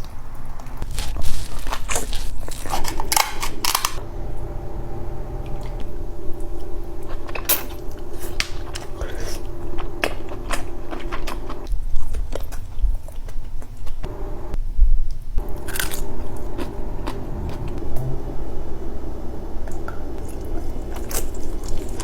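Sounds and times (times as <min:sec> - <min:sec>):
person biting and chewing: 0:00.8 - 0:04.0, 0:15.4 - 0:17.2.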